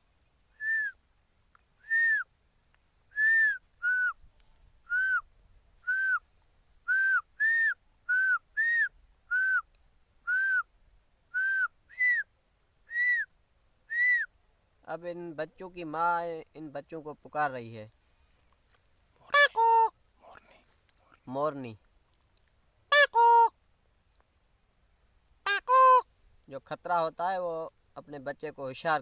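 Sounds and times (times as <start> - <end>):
man imitating bird call: 19.3 - 19.9, 22.9 - 23.6, 25.5 - 26.1.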